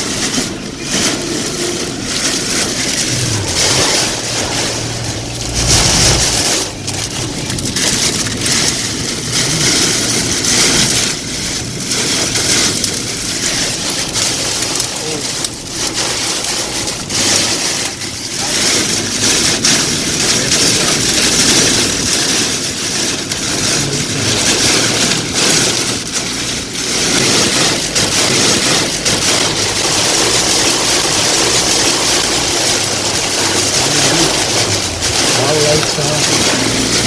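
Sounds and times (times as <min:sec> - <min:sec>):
heavy rain and wind on a car: 0:00.0 - 0:37.0
faint low engine hum: 0:02.6 - 0:12.4.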